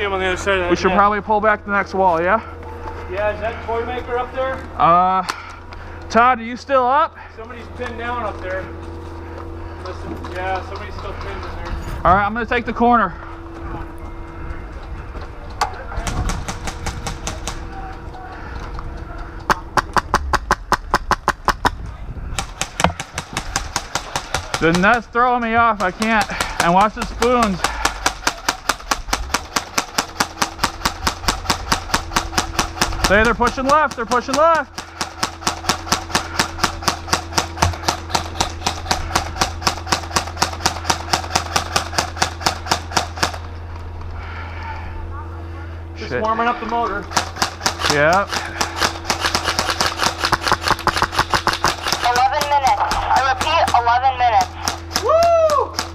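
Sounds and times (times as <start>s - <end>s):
airsoft gun rapid fire: 16.0s - 17.7s, 19.5s - 21.8s, 22.4s - 25.0s, 25.8s - 43.4s, 47.1s - 55.9s.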